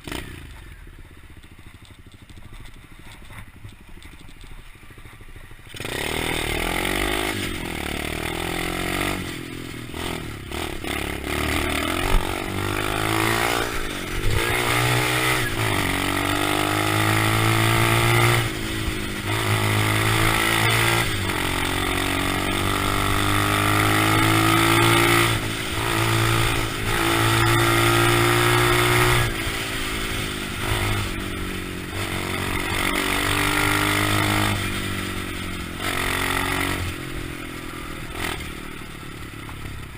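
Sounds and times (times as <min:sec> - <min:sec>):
motorbike engine revving: 0:00.0 - 0:01.0, 0:04.9 - 0:39.9.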